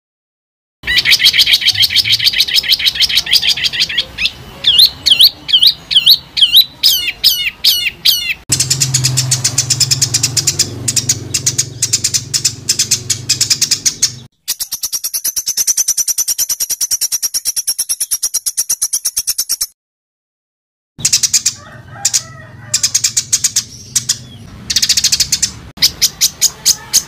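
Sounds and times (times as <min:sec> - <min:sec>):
songbird trilling: 0:00.8 - 0:19.7, 0:21.0 - 0:27.0
bird whistled notes: 0:00.9 - 0:19.7.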